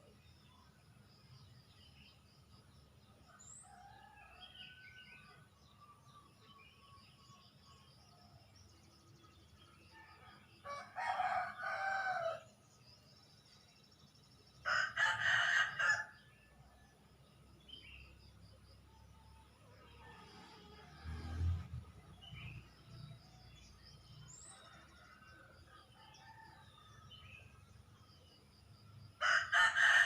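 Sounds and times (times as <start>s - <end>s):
rooster crowing: 10.6s - 12.5s, 14.7s - 16.2s, 29.2s - 30.0s.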